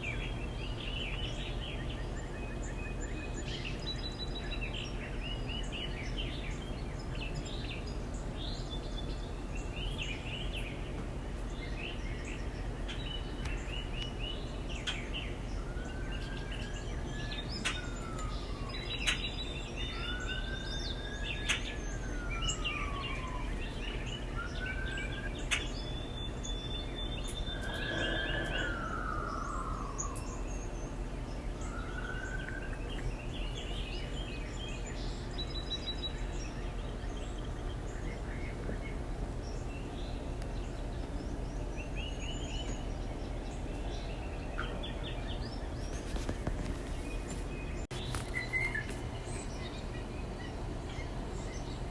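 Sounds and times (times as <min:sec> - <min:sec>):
birds chirping: 0:00.0 - 0:51.9
low background hum: 0:00.0 - 0:51.9
bird slurred whistles: 0:27.4 - 0:30.4.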